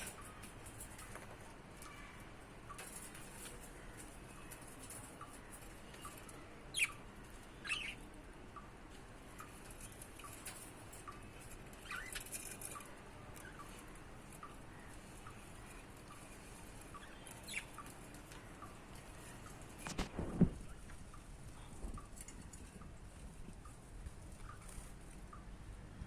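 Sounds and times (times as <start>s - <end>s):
budgerigar chirping: 7.6s - 8.0s, 16.9s - 17.9s.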